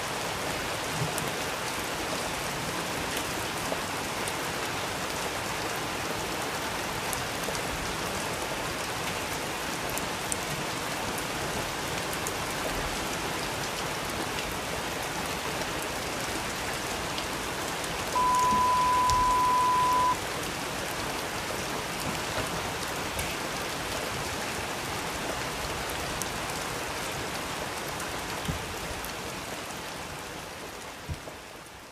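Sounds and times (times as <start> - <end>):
steady rain: 0.0 - 31.9
high beep: 18.2 - 20.2.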